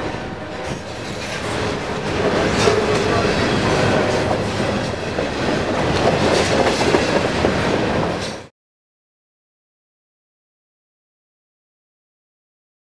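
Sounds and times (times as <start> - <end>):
train wheels rumbling on rail: 0.0 - 8.5
wheels clicking over rail joints: 0.6 - 8.5.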